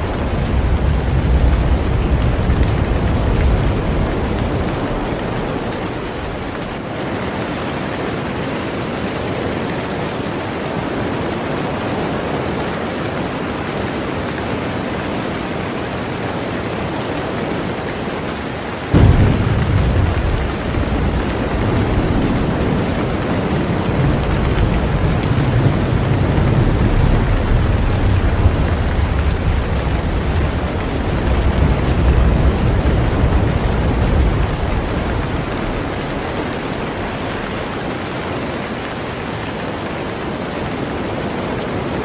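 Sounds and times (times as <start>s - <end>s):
thunder rumbling: 0.0s - 6.9s, 18.9s - 38.9s
heavy rain on a boat: 0.0s - 42.0s.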